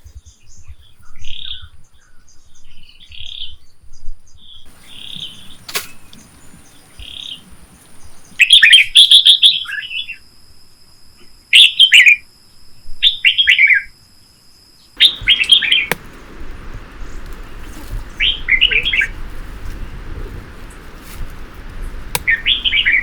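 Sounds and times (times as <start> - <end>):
bird chirping loudly: 4.7 - 9.5, 15.0 - 19.4, 21.7 - 23.0.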